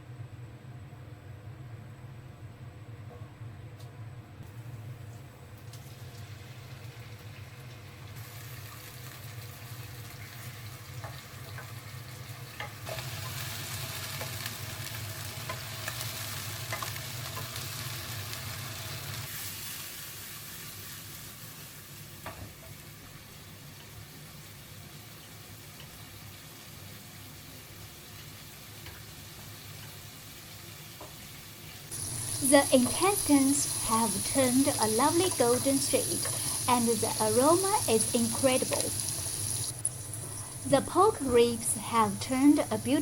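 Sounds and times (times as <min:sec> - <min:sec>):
meat sizzling in a pan: 0:06.0 - 0:43.0
steady low hum: 0:31.9 - 0:43.0.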